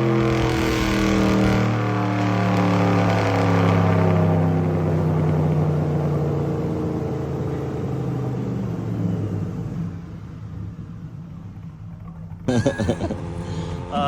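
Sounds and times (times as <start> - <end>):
car engine winding down: 0.0 - 7.4.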